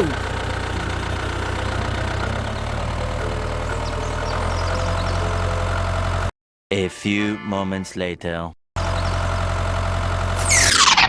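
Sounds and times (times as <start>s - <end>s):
small tractor engine idling: 0.0s - 6.3s, 8.8s - 10.7s.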